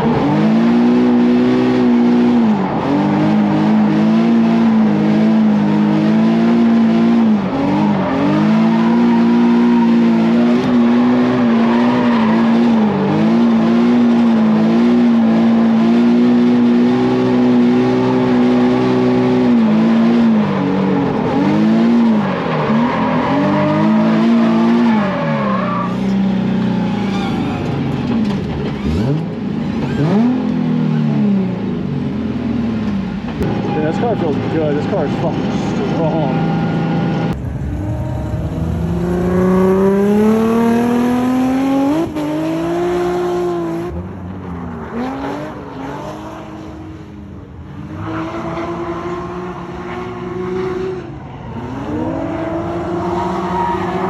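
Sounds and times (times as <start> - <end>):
car engine at high revs: 0.0 - 54.0
tire squeal: 7.5 - 13.7, 20.3 - 26.2, 26.8 - 27.8, 47.9 - 54.0.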